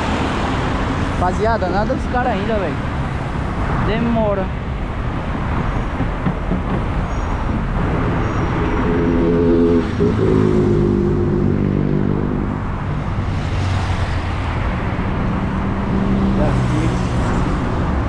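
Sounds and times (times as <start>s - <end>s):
street noise: 0.0s - 18.0s
vehicle engine humming close by: 7.5s - 18.0s.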